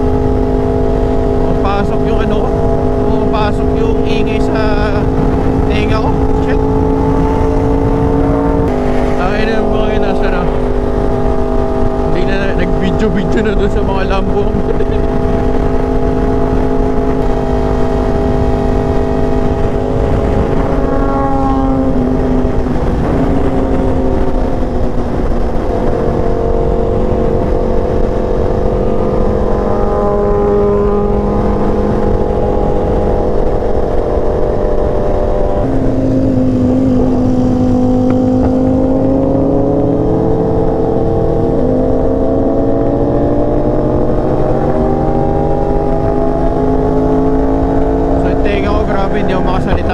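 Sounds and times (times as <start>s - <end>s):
road and wind noise: 0.0s - 49.9s
vehicle engine running: 0.0s - 49.9s.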